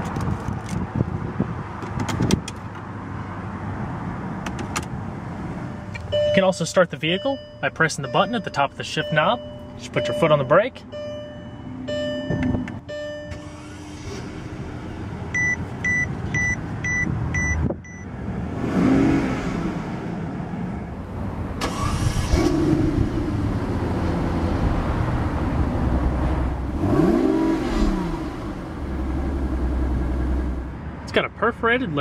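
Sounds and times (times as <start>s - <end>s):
dashboard chimes: 5.8s - 13.4s
beeps: 6.1s - 6.4s, 7.2s - 13.4s, 15.3s - 18.1s
engine revving: 18.4s - 20.1s, 21.6s - 30.7s.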